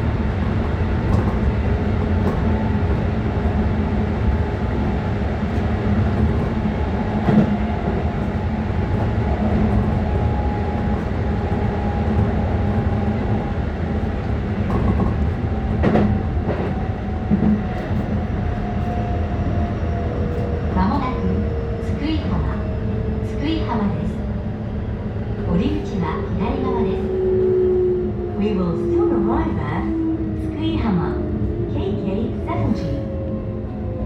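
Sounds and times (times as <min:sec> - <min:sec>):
train wheels and motors rumbling: 0:00.0 - 0:34.0.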